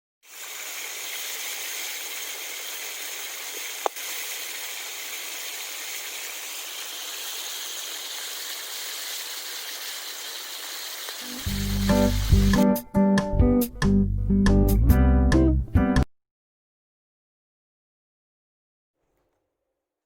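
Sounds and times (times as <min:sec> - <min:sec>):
steady hiss: 0:00.3 - 0:12.6.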